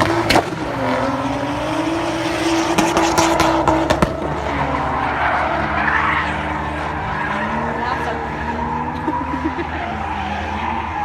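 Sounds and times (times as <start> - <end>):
exhaust pops and crackles: 0.0 - 0.7, 2.7 - 4.4
car engine revving: 0.0 - 11.0.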